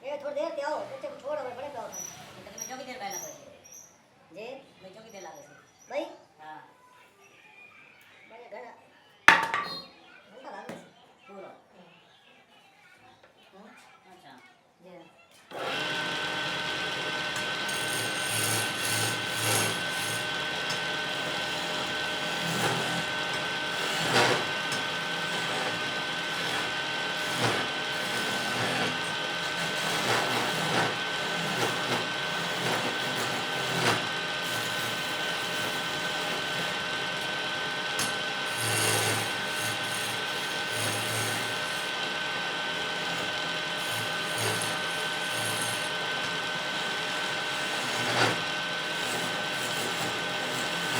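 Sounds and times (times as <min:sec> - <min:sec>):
wood lathe whining: 0:15.5 - 0:50.9
turning tool scraping wood: 0:15.6 - 0:50.9.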